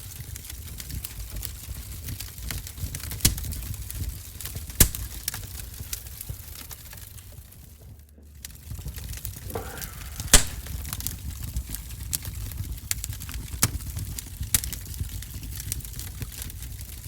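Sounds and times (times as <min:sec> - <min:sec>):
wood fire crackling in stove: 0:00.0 - 0:17.0.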